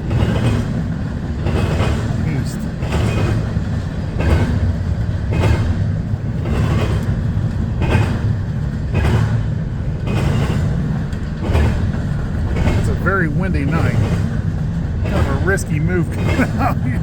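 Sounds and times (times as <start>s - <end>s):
freight train wheels clattering: 0.0s - 17.0s
train rumble: 0.0s - 17.0s.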